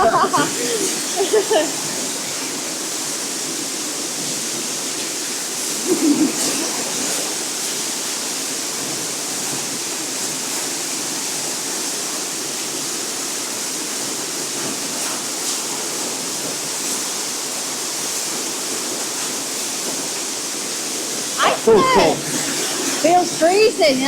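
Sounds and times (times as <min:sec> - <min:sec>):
waterfall rushing in a cave: 0:00.0 - 0:24.0.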